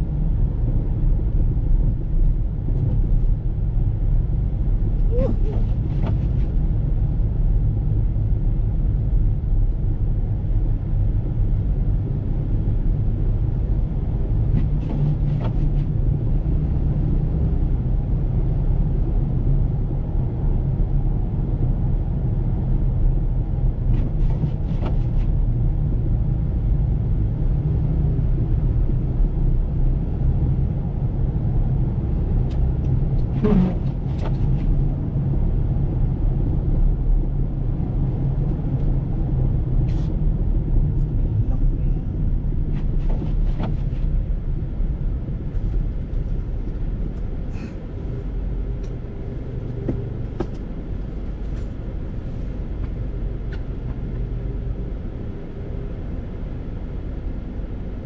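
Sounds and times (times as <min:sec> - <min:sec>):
engine and tyres rumbling: 0:00.0 - 0:58.0.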